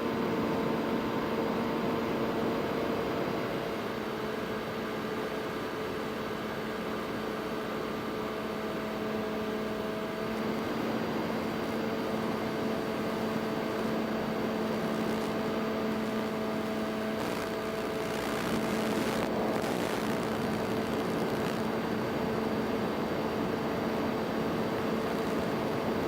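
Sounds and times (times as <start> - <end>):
drone motors humming: 14.6 - 21.7.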